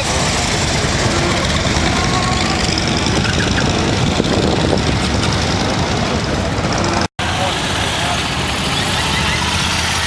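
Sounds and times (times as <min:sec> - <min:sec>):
outdoor rumble: 0:00.0 - 0:10.0
motorcycle engine running: 0:00.1 - 0:07.0.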